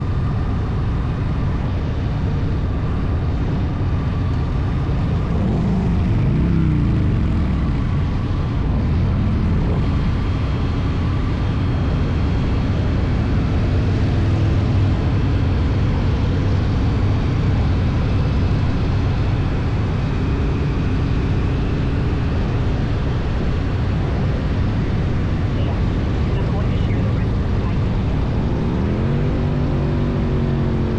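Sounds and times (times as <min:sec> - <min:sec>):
motorcycle engine rumbling: 0:00.0 - 0:17.4
road noise: 0:00.0 - 0:30.9
wind noise: 0:00.0 - 0:30.9.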